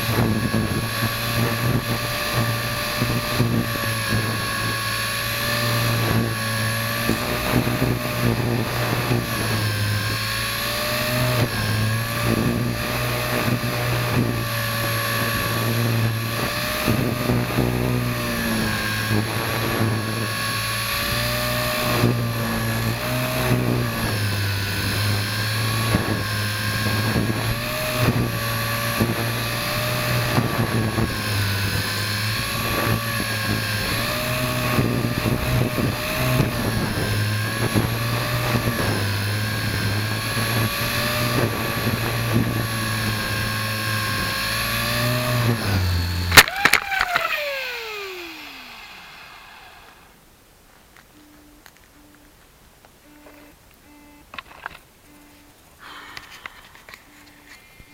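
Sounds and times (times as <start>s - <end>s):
wind buffeting microphone: 0.0s - 46.3s
toy helicopter motor whining: 0.0s - 50.2s, 53.0s - 57.9s.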